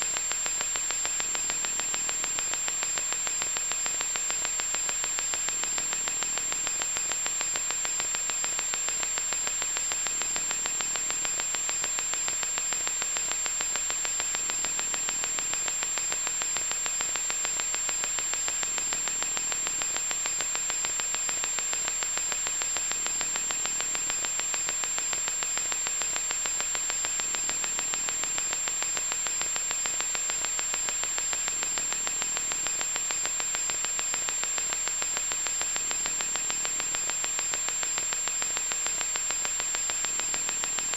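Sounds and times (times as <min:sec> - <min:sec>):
electronic static hiss: 0:00.0 - 0:40.9.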